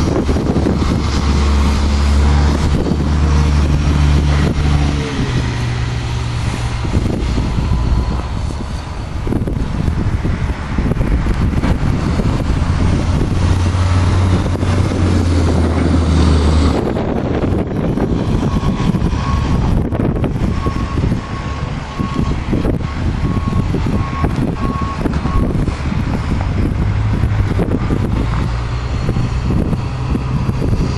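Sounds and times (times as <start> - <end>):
large vehicle engine running: 0.0 - 30.9
wind buffeting microphone: 0.0 - 30.9
reversing alarm beeps: 20.4 - 25.6.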